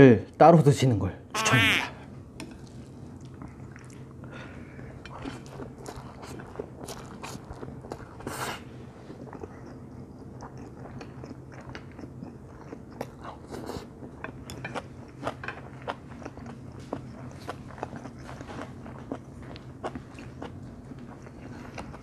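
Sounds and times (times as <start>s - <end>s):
wet chewing: 2.4s - 22.0s.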